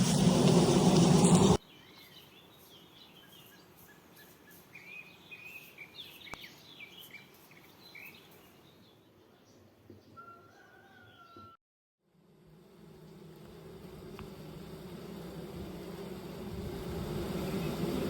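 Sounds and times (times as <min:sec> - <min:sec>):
loud noisy hum: 0:00.0 - 0:01.6, 0:12.2 - 0:18.0
small birds chirping: 0:01.6 - 0:10.2.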